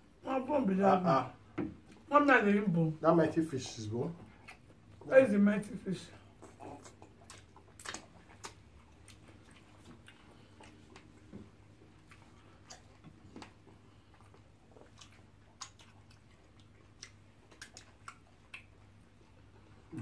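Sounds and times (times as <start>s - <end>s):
lip smacks and chewing clicks: 4.2s - 5.1s, 6.2s - 20.0s
finger licking: 12.0s - 18.9s.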